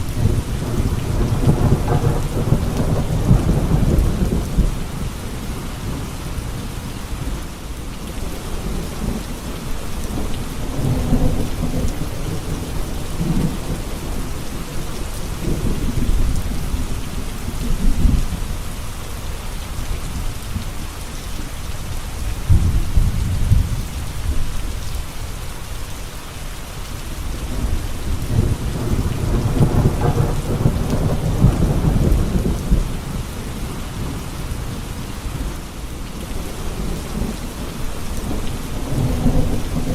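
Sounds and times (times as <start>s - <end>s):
thunder rolling: 0.0s - 5.0s, 27.5s - 33.1s, 38.2s - 39.9s
steady rain: 0.0s - 39.9s.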